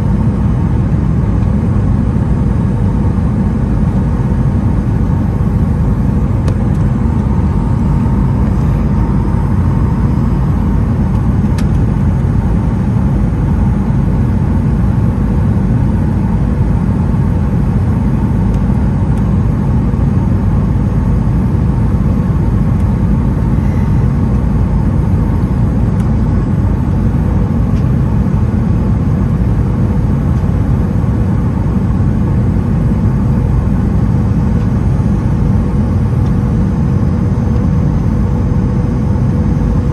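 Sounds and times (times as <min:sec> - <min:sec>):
jet engines and airflow rumble: 0:00.0 - 0:39.9
faint whining tones: 0:22.4 - 0:28.2.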